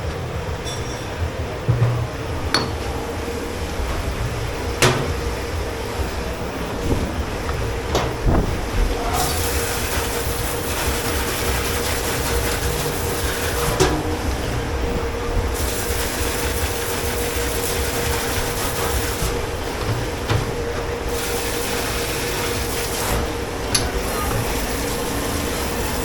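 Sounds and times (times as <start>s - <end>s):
machinery hum and rumble: 0.0s - 26.0s
dishes clattering: 0.5s - 4.1s.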